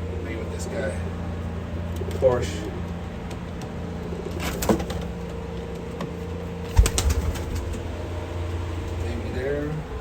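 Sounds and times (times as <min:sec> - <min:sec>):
steady low hum: 0:00.0 - 0:10.0
pigeons flapping wings: 0:06.6 - 0:08.0.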